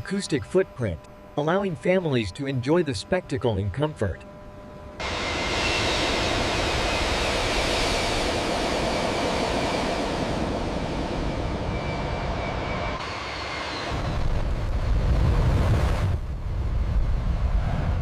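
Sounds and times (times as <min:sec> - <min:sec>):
jet engine roar with whining: 0:00.0 - 0:18.0
deep low rumble: 0:14.0 - 0:18.0.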